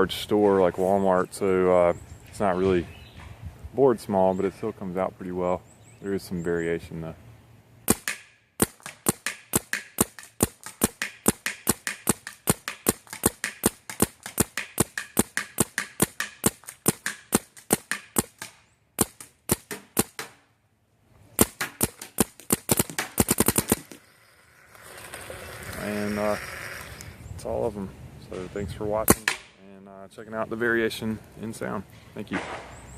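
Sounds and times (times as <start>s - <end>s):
paintball marker shots: 7.9s - 20.4s, 21.4s - 24.0s, 29.1s - 29.6s, 32.3s - 32.8s.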